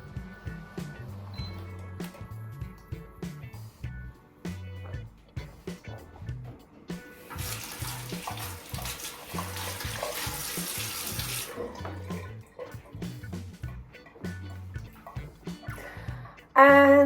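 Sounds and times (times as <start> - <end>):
background music with bass beat: 0.0 - 7.2, 11.6 - 17.0
tap running into sink: 7.2 - 15.8.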